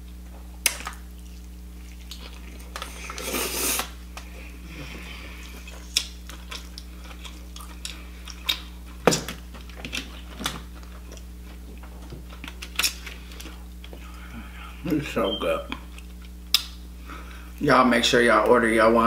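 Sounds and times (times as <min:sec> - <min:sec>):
chewing soft food: 0:00.0 - 0:14.8
steady low hum: 0:00.0 - 0:19.0.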